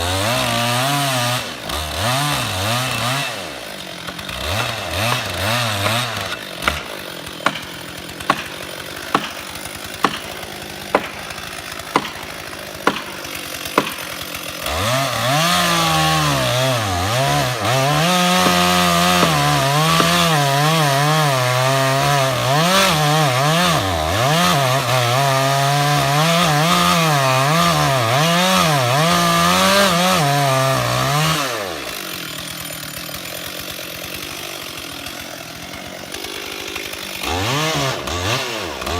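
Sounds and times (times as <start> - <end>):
chainsaw cutting wood: 0.0 - 38.9
sharp knocks: 18.3 - 20.4.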